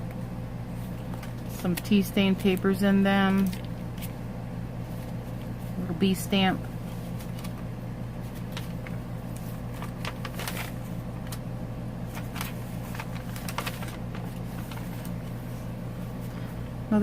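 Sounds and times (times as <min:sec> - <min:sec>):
steady low hum: 0:00.0 - 0:17.0
paper pages rustling: 0:00.7 - 0:02.7, 0:03.3 - 0:04.2, 0:04.8 - 0:05.8, 0:06.8 - 0:11.4, 0:12.0 - 0:16.3.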